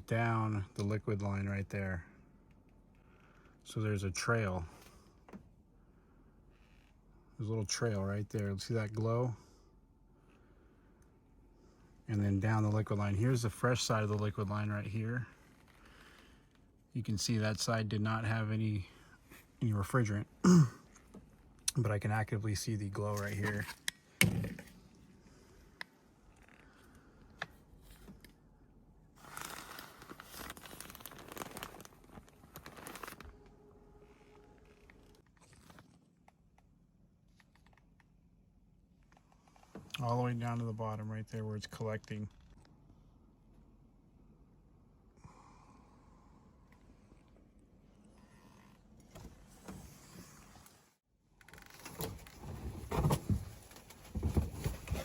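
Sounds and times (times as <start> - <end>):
rustling handling noise: 29.2 - 36.0, 51.6 - 55.0
equipment handling knocks and thuds: 51.9 - 55.0.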